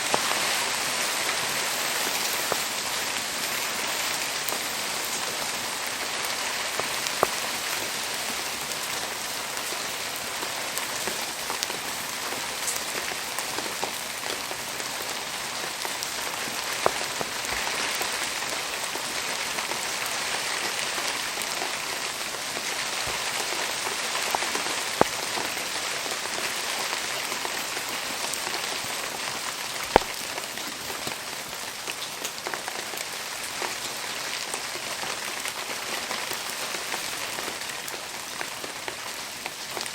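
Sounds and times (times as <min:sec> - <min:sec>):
steady rain falling: 0:00.0 - 0:39.9
sharp pops: 0:05.8 - 0:15.1, 0:29.9 - 0:30.4.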